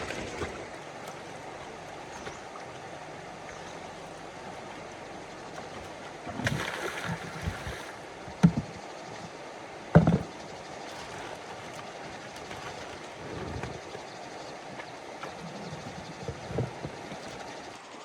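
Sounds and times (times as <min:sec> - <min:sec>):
water splashing: 0:00.0 - 0:17.9
rushing water: 0:00.0 - 0:18.0.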